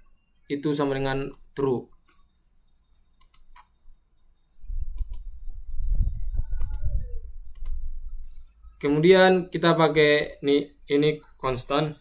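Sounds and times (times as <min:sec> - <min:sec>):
faint computer clicks: 0:03.2 - 0:03.7, 0:04.9 - 0:05.3, 0:07.5 - 0:07.8.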